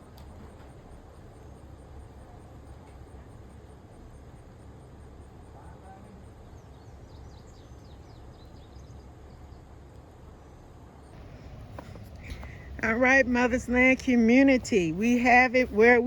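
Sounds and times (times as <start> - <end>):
steady low rumble: 11.2 - 16.0.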